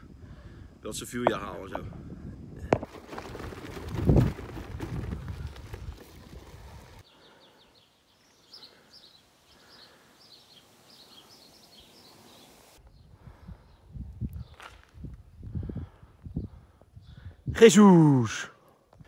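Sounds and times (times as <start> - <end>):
low rumbling wind noise: 0.0 - 7.0, 12.8 - 17.6
small bird chirping: 7.1 - 13.1.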